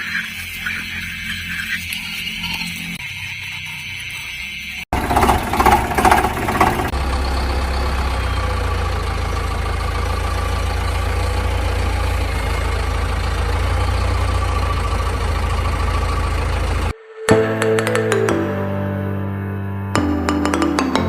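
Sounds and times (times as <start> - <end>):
engine clattering and idling: 4.9 - 17.0.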